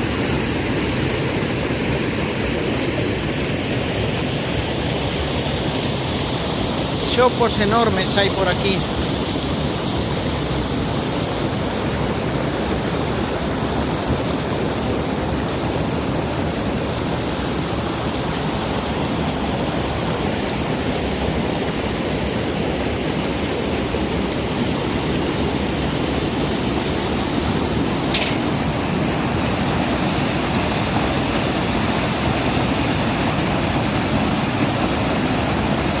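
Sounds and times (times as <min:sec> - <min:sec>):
river water rushing: 0:00.0 - 0:36.0
sharp click: 0:28.1 - 0:28.5.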